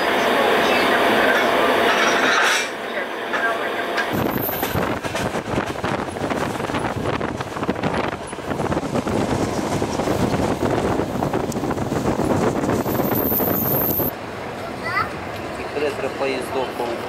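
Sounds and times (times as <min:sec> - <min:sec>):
train wheels on rails: 0:00.0 - 0:17.0
wind rushing past microphone: 0:04.1 - 0:14.1.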